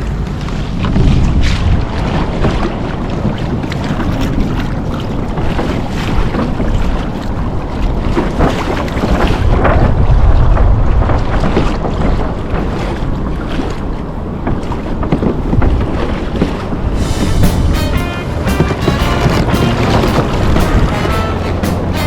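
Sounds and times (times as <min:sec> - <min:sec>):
water splashing against hull: 0:00.0 - 0:22.0
wind buffeting microphone: 0:00.0 - 0:22.0
music: 0:17.0 - 0:22.0.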